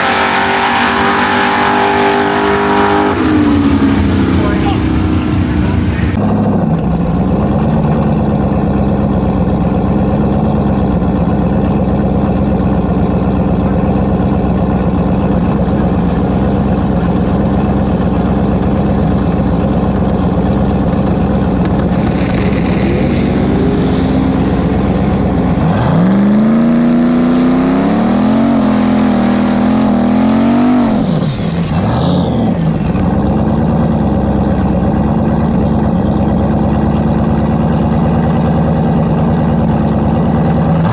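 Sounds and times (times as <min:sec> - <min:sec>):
vehicle engine revving: 0:00.0 - 0:06.6, 0:16.8 - 0:39.2.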